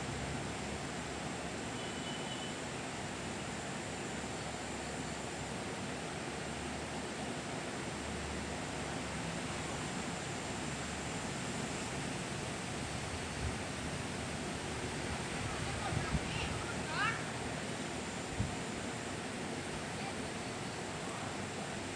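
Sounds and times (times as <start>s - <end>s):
steady outdoor hiss: 0.0s - 21.9s.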